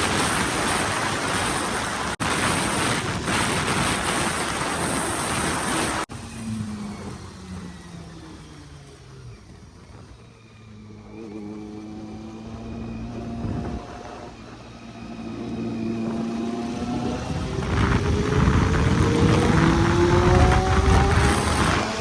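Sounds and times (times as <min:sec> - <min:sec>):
vehicle engine running: 0:05.8 - 0:22.0.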